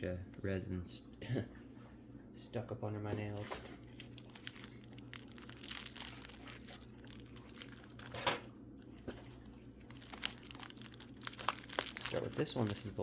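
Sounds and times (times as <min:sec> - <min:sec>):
low electrical hum: 0:00.0 - 0:13.0
packing material crinkling: 0:03.8 - 0:13.0.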